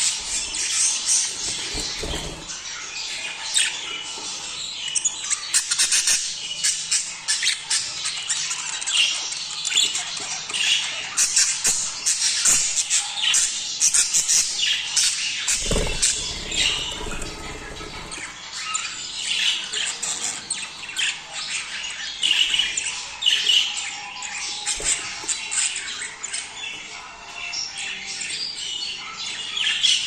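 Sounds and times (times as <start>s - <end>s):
budgerigars chattering: 10.5s - 21.4s.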